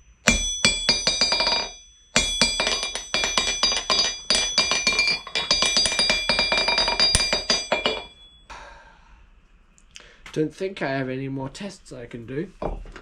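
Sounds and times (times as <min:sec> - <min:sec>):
hammer striking steel anvil: 0:00.0 - 0:08.5.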